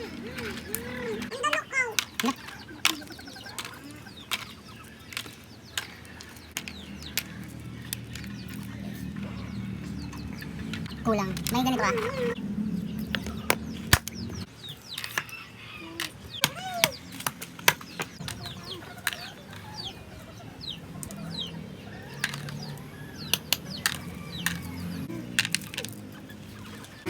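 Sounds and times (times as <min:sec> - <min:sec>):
chickens clucking: 0:00.0 - 0:27.0
chicks peeping: 0:00.0 - 0:27.0
sharp clicks and knocks: 0:22.2 - 0:24.7.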